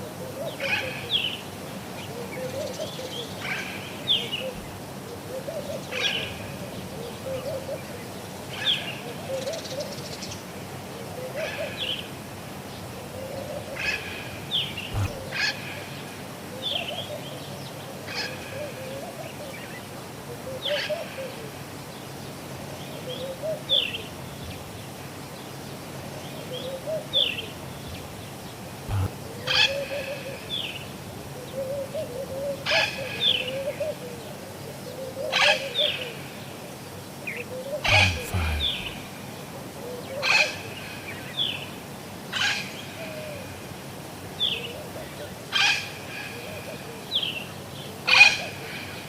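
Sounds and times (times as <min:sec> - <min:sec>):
low warbling coo: 0:14.9 - 0:15.3, 0:28.9 - 0:29.1, 0:37.9 - 0:39.1.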